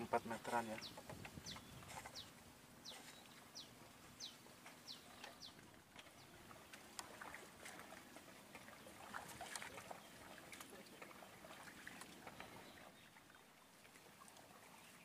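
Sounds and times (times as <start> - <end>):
bird calls: 0.0 - 6.8, 8.6 - 13.4.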